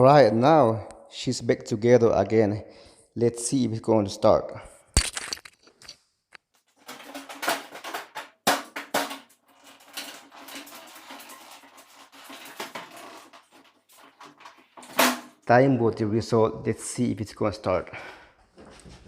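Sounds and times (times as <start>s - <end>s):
clicks and rattles of handling dryer: 6.8s - 15.4s.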